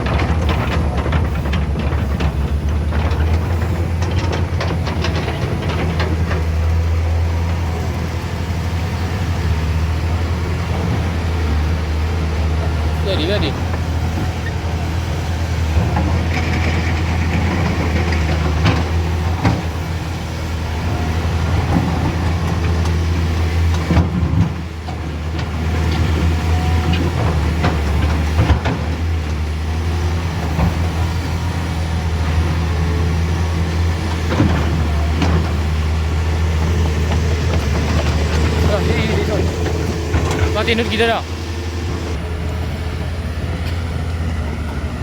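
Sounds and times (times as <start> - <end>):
knocks and rattles: 0.0 - 8.3, 21.6 - 42.2
large vehicle engine humming: 0.0 - 45.0.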